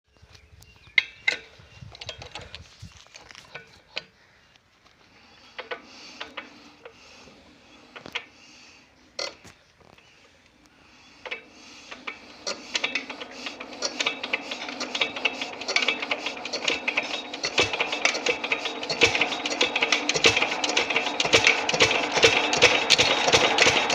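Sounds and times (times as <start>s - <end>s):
engine mechanical clatter: 11.2s - 23.9s.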